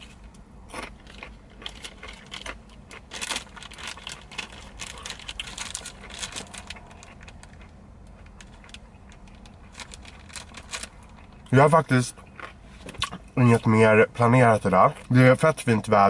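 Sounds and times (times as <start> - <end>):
plastic bag crinkling: 1.0 - 11.4.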